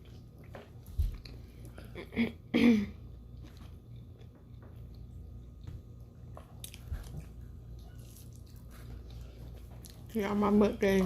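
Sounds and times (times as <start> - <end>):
person chewing and biting: 3.3 - 10.1.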